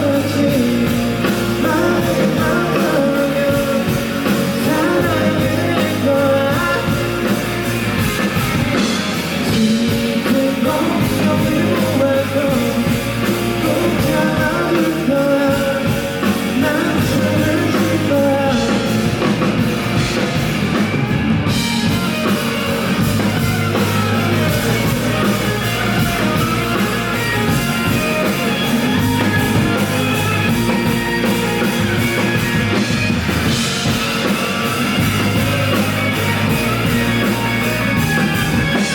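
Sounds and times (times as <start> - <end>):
person singing: 0.0 - 7.7, 8.8 - 19.7
live rock band playing: 0.0 - 38.9.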